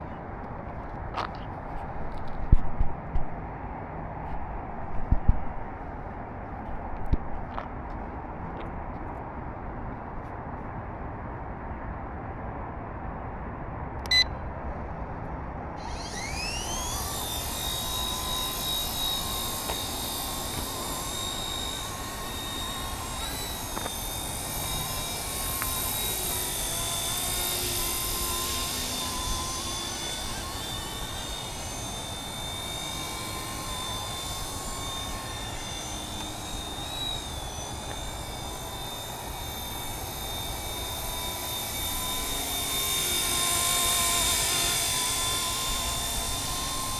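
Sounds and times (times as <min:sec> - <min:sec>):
short beep: 0:14.1 - 0:14.4
model helicopter rotor whine: 0:14.8 - 0:46.9.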